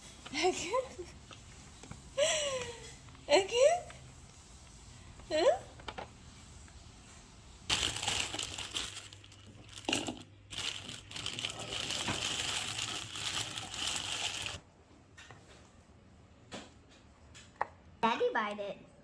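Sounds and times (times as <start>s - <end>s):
plastic bag crinkling: 7.7s - 14.6s.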